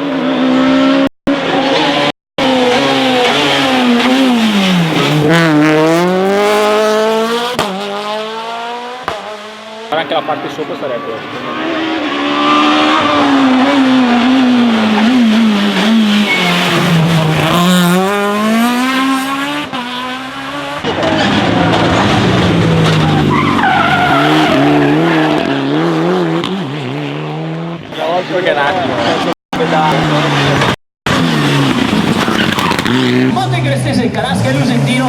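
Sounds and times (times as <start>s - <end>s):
car engine revving: 0.0s - 35.0s
tyres squealing: 16.0s - 17.2s.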